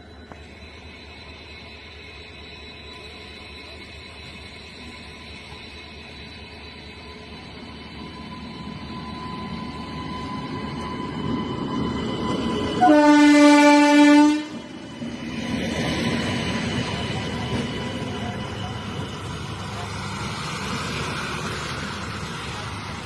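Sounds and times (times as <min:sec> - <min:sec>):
electric locomotive rumble: 0:00.0 - 0:23.0
locomotive horn blast: 0:12.8 - 0:14.7.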